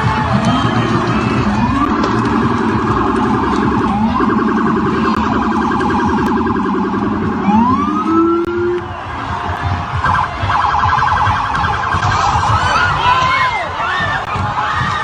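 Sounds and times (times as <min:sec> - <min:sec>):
police siren wailing: 0:00.0 - 0:15.0.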